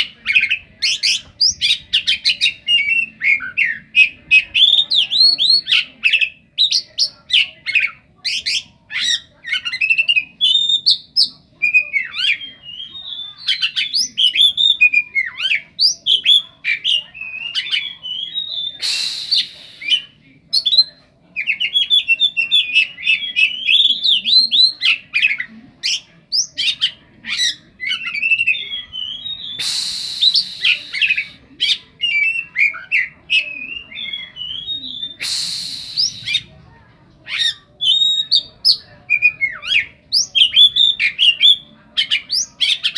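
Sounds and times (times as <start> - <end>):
bird singing varied song: 0.0 - 36.6, 37.2 - 42.9
harsh rasping bird call: 17.6 - 20.2, 26.6 - 36.5.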